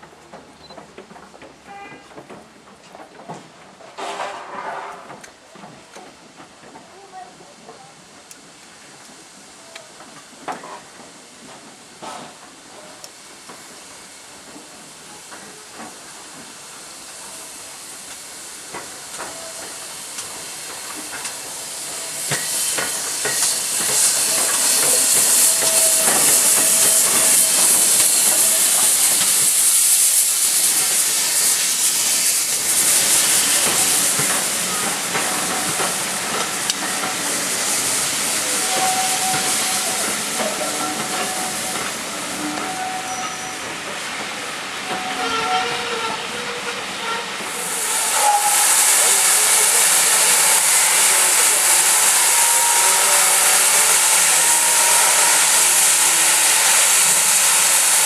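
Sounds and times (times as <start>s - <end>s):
steam locomotive hissing steam: 3.2s - 58.0s.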